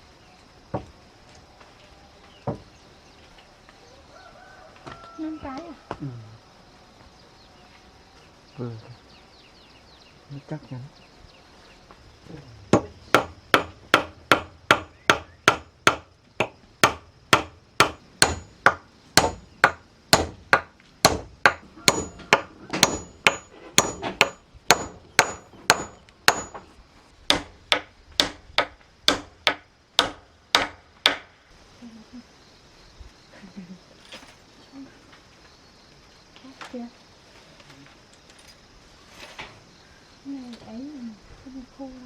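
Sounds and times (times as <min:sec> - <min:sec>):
hammer blows: 0:12.7 - 0:26.7.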